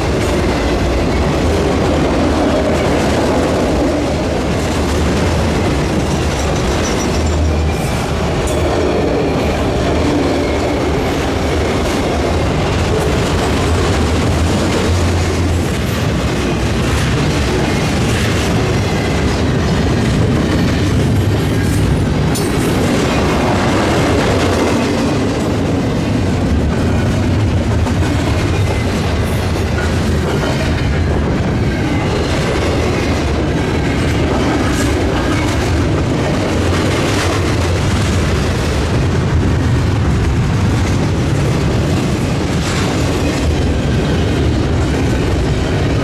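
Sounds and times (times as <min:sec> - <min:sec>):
train wheels clacking: 0:00.0 - 0:46.0
train wheels rumbling on rail: 0:00.0 - 0:46.0.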